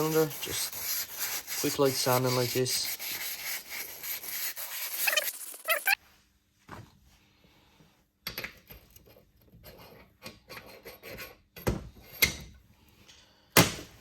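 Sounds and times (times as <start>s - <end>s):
sandpaper rubbing on metal: 0.0s - 6.0s.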